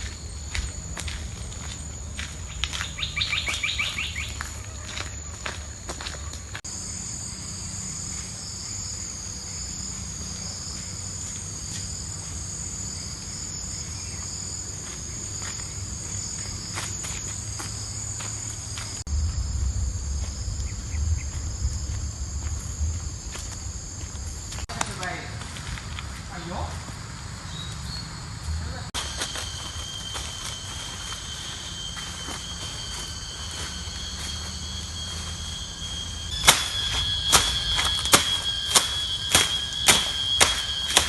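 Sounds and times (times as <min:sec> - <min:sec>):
jungle insects chorus: 0:00.0 - 0:41.0
low rumble: 0:19.1 - 0:24.6.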